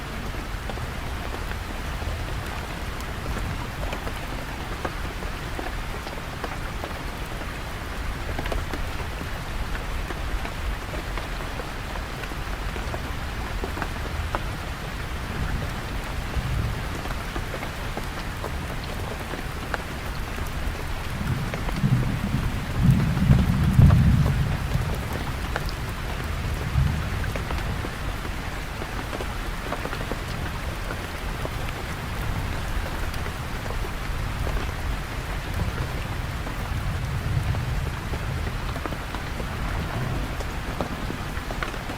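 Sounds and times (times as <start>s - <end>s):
rain pattering on surfaces: 0.0s - 41.9s
low rumble: 37.1s - 41.9s.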